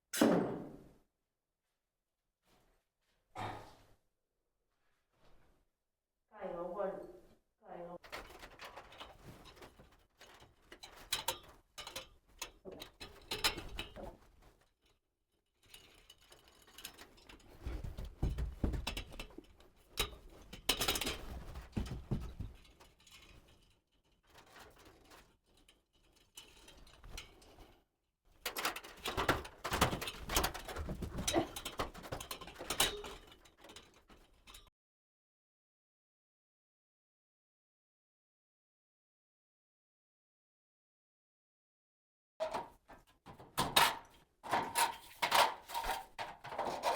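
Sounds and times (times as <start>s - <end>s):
carpentry knocks and scraping: 15.7s - 23.7s, 28.5s - 34.5s, 42.4s - 46.9s.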